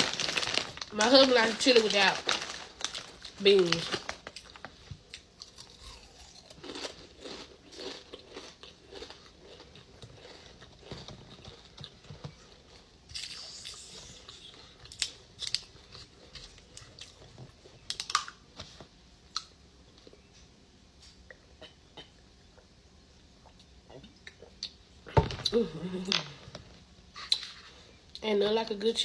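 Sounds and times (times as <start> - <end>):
person chewing with wet smacks: 5.1 - 15.1.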